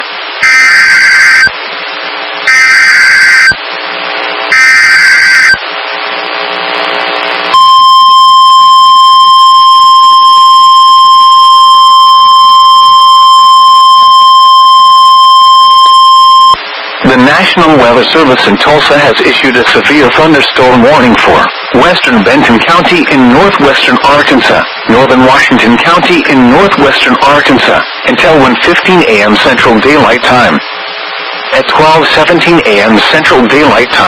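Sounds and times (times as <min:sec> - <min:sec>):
radio static: 0:00.0 - 0:34.0
steady warning alarm tone: 0:00.4 - 0:01.6, 0:02.5 - 0:03.6, 0:04.5 - 0:05.6, 0:07.5 - 0:16.6
warbling data tones: 0:00.4 - 0:01.6, 0:02.4 - 0:03.6, 0:04.5 - 0:05.6, 0:07.5 - 0:17.3.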